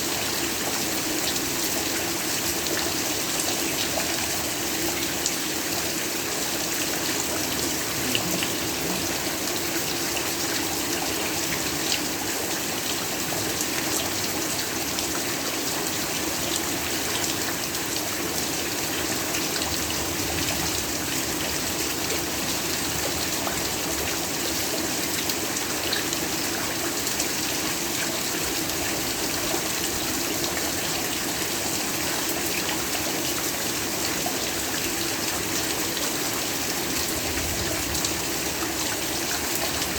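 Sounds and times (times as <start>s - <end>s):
heavy rain falling: 0.0s - 15.2s, 16.0s - 39.9s.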